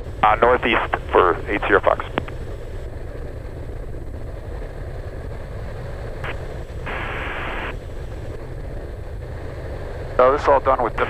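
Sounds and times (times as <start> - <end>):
turboprop engine drone: 0.0 - 11.0
radio static: 0.2 - 2.4, 6.2 - 8.1, 10.2 - 11.0.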